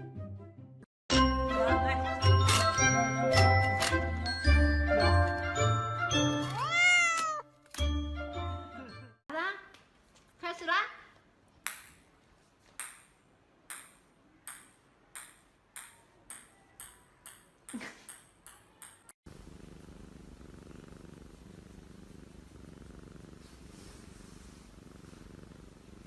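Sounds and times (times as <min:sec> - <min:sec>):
small hard ball bouncing: 0:12.7 - 0:19.1
cat purring: 0:19.3 - 0:26.0.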